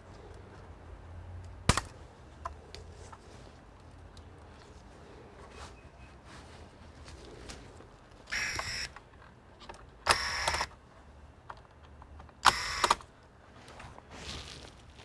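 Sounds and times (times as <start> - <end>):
small electric motor whirring: 8.3 - 9.0, 10.1 - 10.7, 12.4 - 13.0.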